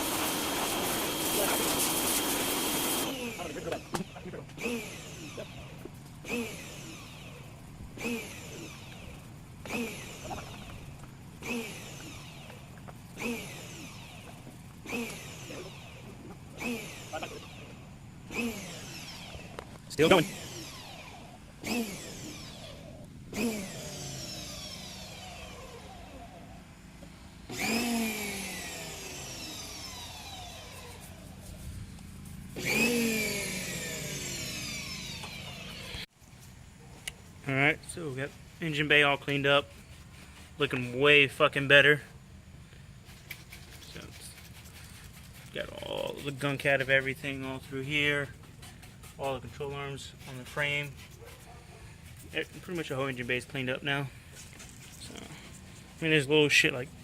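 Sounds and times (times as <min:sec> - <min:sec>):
pressure washer surging: 0:00.0 - 0:26.5, 0:27.4 - 0:36.1.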